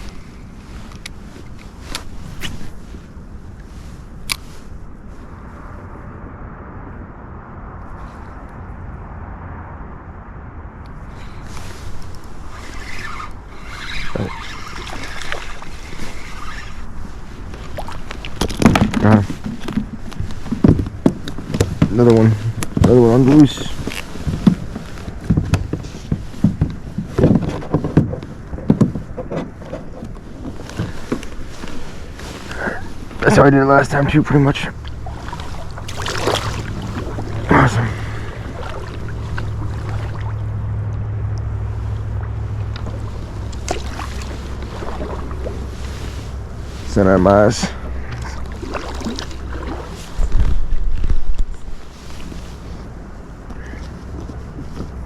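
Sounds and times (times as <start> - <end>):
wind rumbling on microphone: 0.0 - 55.0
knocks and thuds against boat: 17.5 - 31.5, 34.7 - 40.4.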